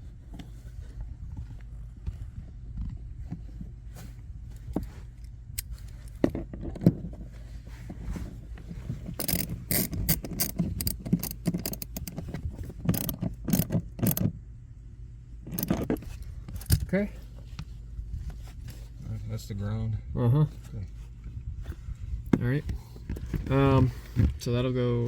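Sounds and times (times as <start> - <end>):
ratcheting hand tool clicking: 9.2 - 12.2, 12.8 - 14.3, 15.5 - 16.0.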